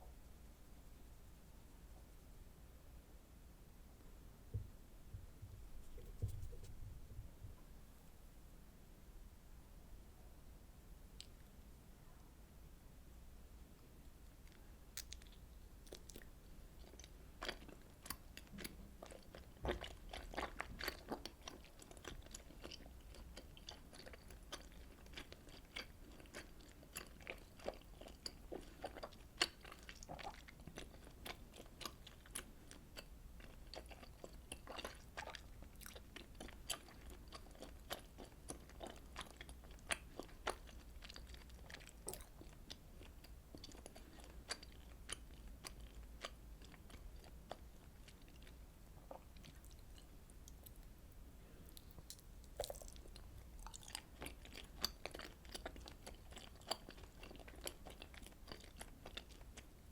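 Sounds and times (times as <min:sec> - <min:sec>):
chewing and mouth sounds: 0:14.3 - 0:51.0, 0:51.6 - 0:59.8.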